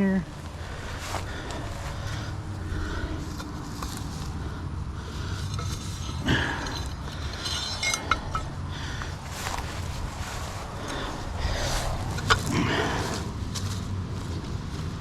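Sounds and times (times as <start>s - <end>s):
rigging rustle: 0.0s - 15.0s
steady low rumble: 0.0s - 15.0s
sharp metallic clinks: 5.3s - 8.7s.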